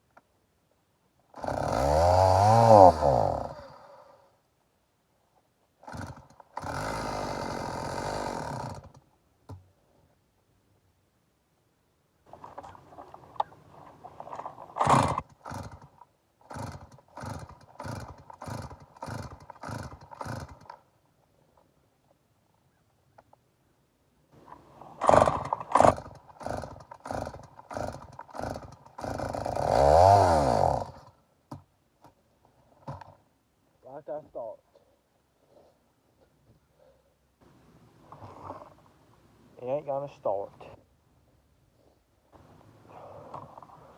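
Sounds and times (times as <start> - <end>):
chainsaw running in bursts: 1.3 - 4.0, 5.8 - 9.0, 14.2 - 20.8, 24.9 - 31.2.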